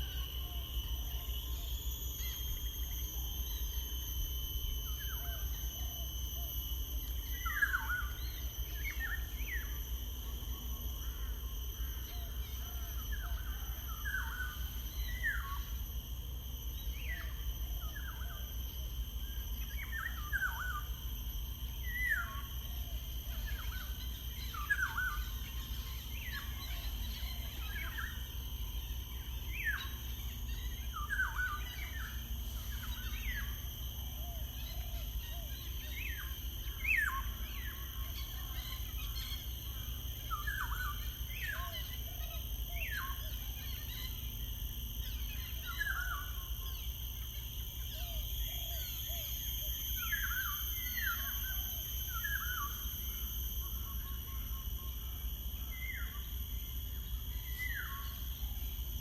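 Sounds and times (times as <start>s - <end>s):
steady high-pitched tone: 45.0s - 59.0s.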